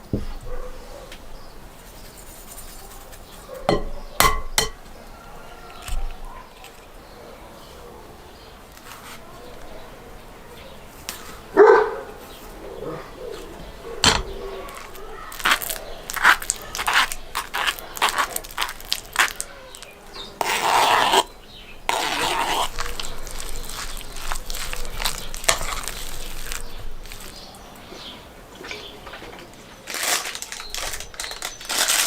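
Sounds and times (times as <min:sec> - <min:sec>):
dog barking: 0:00.4 - 0:01.2, 0:05.2 - 0:08.2, 0:11.5 - 0:15.3.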